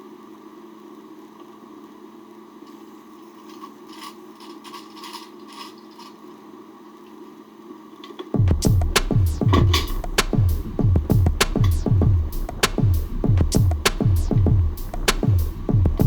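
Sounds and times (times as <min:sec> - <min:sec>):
tools and metal parts clicking: 0:03.4 - 0:06.2
steady hum: 0:08.3 - 0:16.0.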